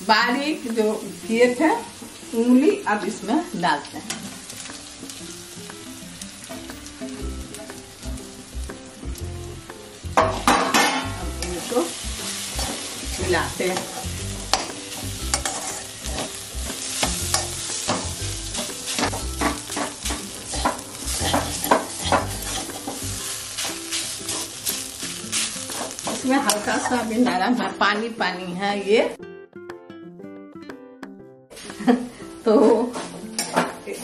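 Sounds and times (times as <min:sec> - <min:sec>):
radish sizzling in hot oil: 0:00.0 - 0:27.7
spatula scraping and knocking pan: 0:10.2 - 0:27.4.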